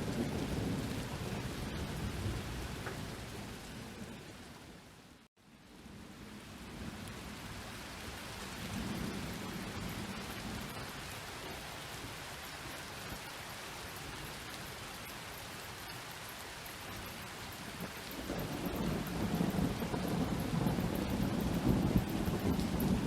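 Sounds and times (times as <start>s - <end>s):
low rumble of thunder: 0.0s - 4.8s, 5.7s - 12.4s, 16.9s - 23.0s
rain falling: 0.0s - 23.0s.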